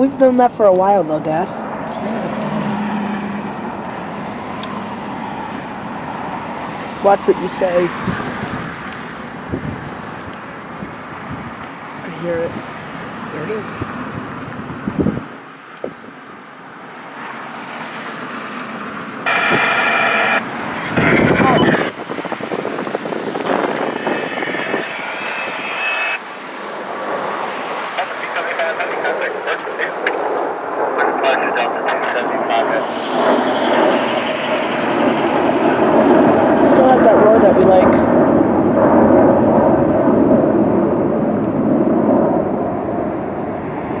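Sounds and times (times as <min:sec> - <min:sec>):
jet engines rushing: 0:00.0 - 0:15.9, 0:16.7 - 0:44.0
high whine: 0:19.2 - 0:27.3, 0:27.9 - 0:44.0.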